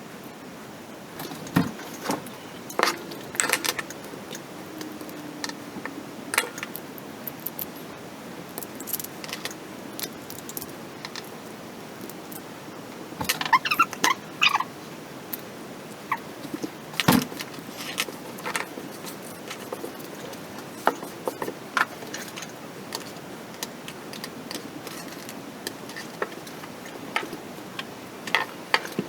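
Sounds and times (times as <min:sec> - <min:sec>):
small hard parts clicking: 0:01.2 - 0:07.8, 0:08.5 - 0:11.4, 0:15.3 - 0:29.0
short squeaks: 0:13.2 - 0:14.7.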